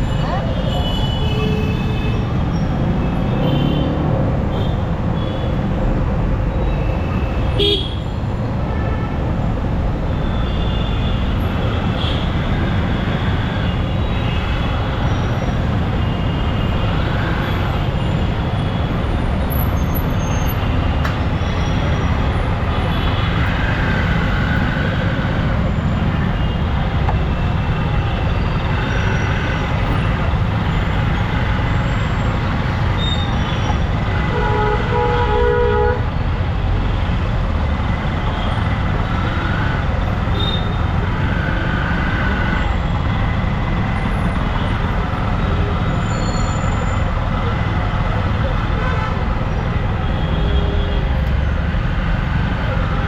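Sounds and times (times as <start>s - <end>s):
vehicle horns tooting: 7.5s - 8.1s, 32.9s - 36.1s, 40.3s - 40.8s.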